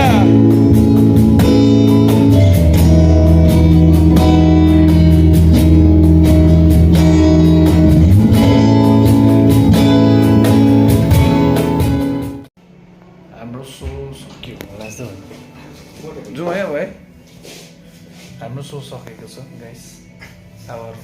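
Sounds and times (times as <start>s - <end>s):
guitar chords strummed: 0.0s - 12.5s.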